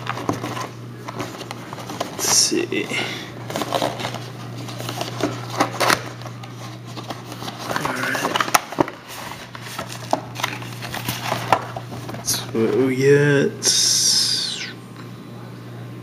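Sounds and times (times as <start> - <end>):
card pack rustling: 0.0 - 2.8, 3.4 - 12.3
low electrical hum: 0.0 - 16.0.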